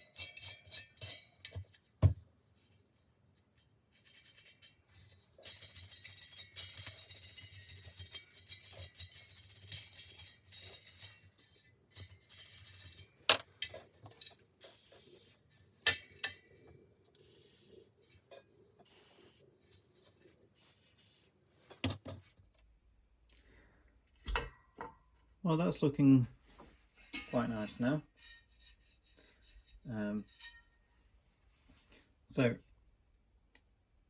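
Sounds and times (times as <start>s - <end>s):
scrubbing on metal: 0.0s - 22.2s, 26.8s - 30.8s.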